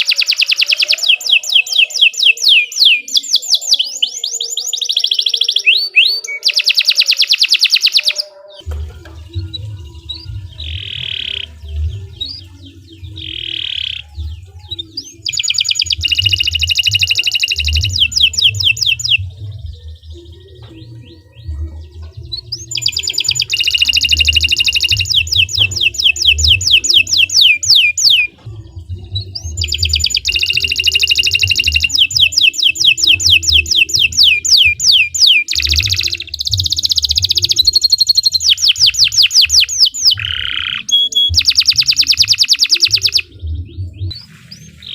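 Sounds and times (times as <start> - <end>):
canary singing trills: 0.0 - 44.9
low rumble: 8.7 - 13.4, 19.1 - 22.8, 43.2 - 44.9.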